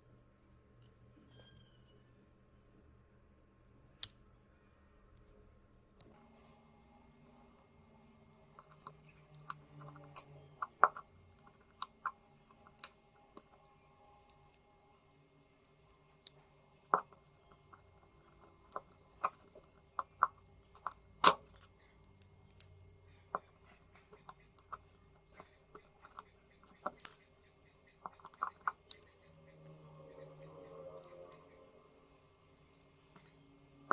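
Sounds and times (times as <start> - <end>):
faint steady hum: 0.0 - 33.9
small tools clicking and tapping: 6.0 - 14.7, 16.1 - 33.9.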